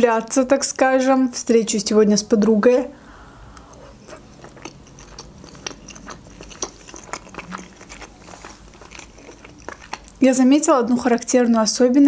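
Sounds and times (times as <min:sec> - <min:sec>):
wet chewing mouth clicks: 0:03.1 - 0:10.6.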